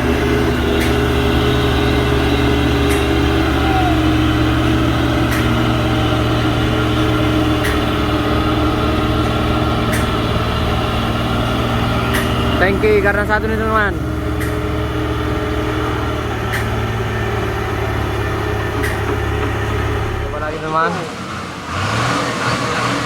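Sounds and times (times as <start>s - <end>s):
diesel truck engine running: 0.0s - 23.0s
faint sharp clicks: 9.9s - 10.2s, 12.1s - 12.4s, 14.4s - 14.6s.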